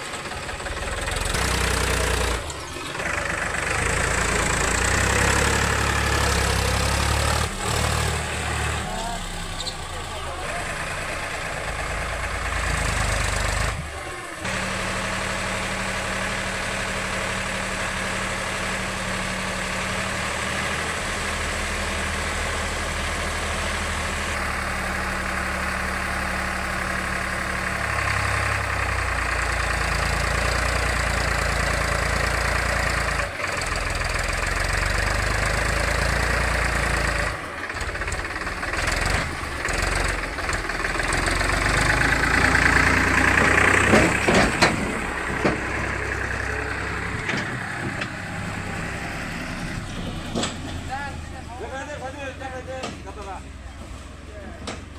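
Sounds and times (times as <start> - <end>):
heavy machinery diesel engine: 0.0 - 54.9.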